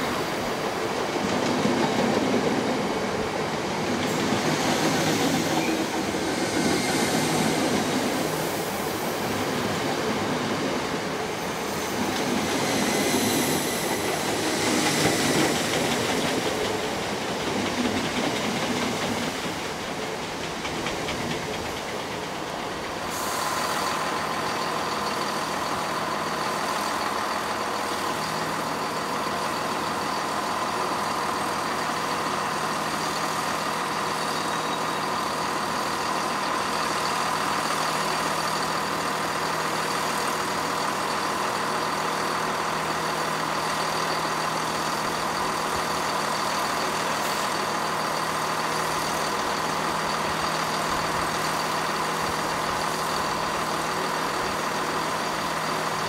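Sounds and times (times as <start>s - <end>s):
train rushing roar: 0.0s - 56.0s
train wheels clattering over rail joints: 11.9s - 23.1s.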